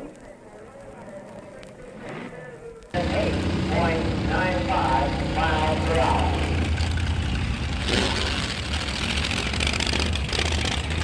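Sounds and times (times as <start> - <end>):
car engine idling: 3.0 - 11.0.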